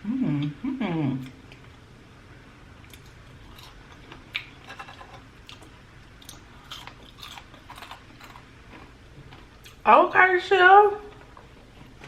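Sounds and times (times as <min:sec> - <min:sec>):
person chewing food: 0:02.8 - 0:09.8.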